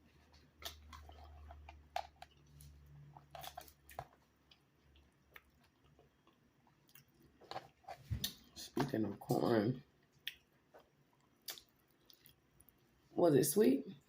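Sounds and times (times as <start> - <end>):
close-up chewing: 0.0 - 8.5, 10.0 - 12.8
mouth clicks and smacks: 10.2 - 10.5, 11.2 - 12.4.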